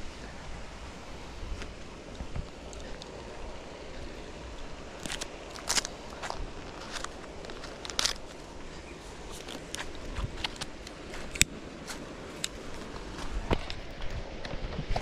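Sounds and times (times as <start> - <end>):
faint background noise: 0.0 - 15.0
sharp clicks and crackles: 5.0 - 8.4.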